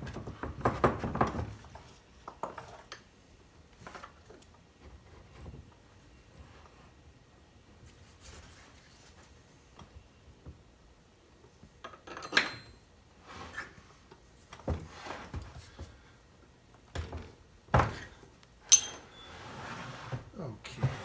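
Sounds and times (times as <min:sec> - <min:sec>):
metal tools knocking and clinking: 0:12.0 - 0:12.8, 0:18.7 - 0:19.2
ringing metallic clink: 0:18.7 - 0:19.3.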